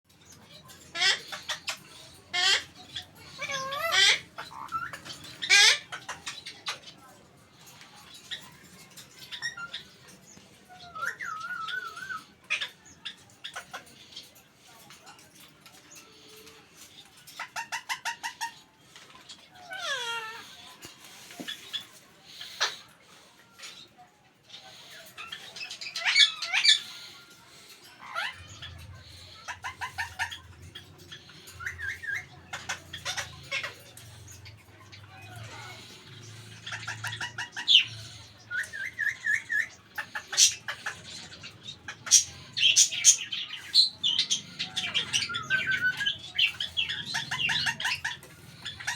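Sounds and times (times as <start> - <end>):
parakeet chirps and warbling: 0.1 - 14.7, 16.1 - 23.8, 24.4 - 48.9.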